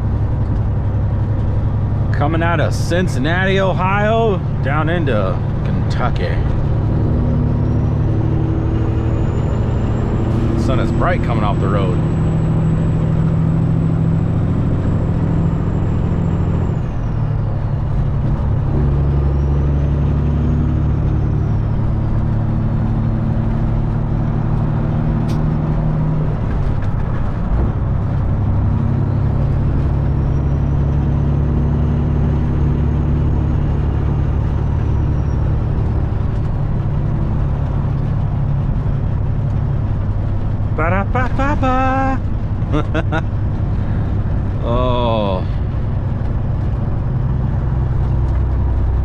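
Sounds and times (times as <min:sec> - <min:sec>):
truck engine droning: 0:00.0 - 0:49.0
sharp click: 0:25.2 - 0:25.6.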